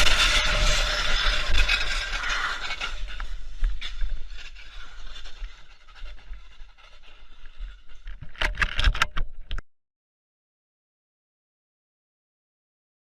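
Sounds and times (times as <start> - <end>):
loud clatters: 0.0 - 9.3
knocks and rattles: 0.0 - 9.6.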